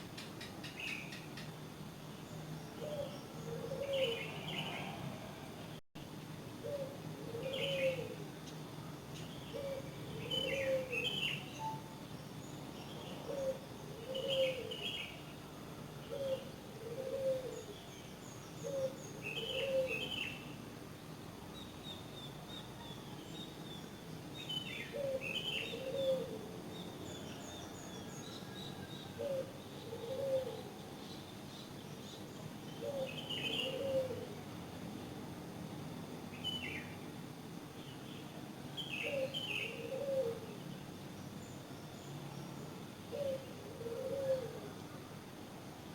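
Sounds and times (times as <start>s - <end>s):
small birds chirping: 0.1s - 5.0s.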